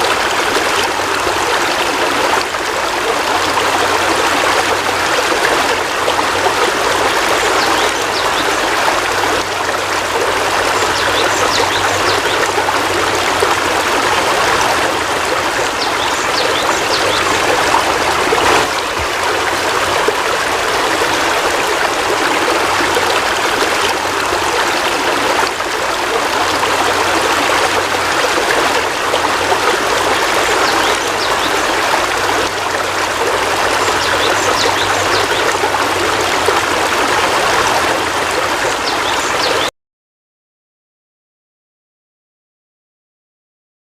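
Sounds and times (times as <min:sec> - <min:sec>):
heavy rain falling: 0:08.0 - 0:38.6.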